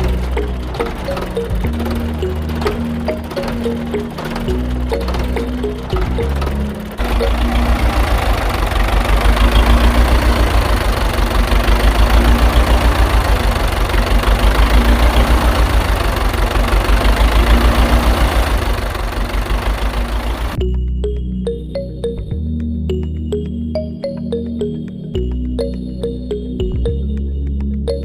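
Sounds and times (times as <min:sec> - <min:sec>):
tractor engine idling: 0:00.0 - 0:20.6.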